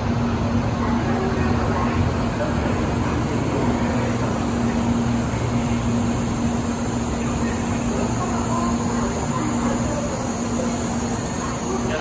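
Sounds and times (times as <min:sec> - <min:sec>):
train rolling slowly past: 0:00.0 - 0:12.0.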